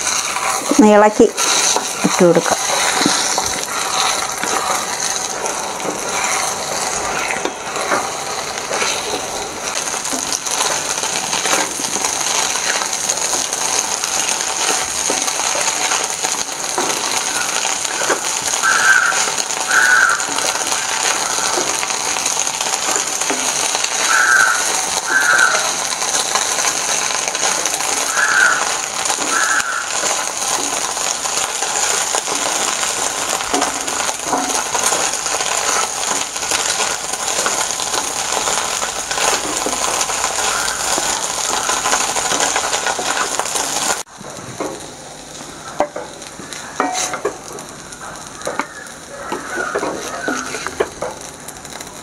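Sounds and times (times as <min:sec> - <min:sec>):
food sizzling in oil: 0:00.0 - 0:52.0
spatula scraping a pan: 0:01.4 - 0:09.3, 0:46.8 - 0:47.3.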